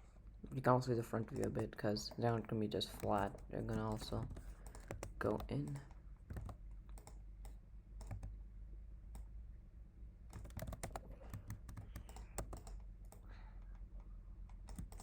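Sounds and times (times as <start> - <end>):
steady low hum: 0.0 - 15.0
computer keyboard typing: 1.2 - 8.4, 10.3 - 13.3, 14.5 - 15.0.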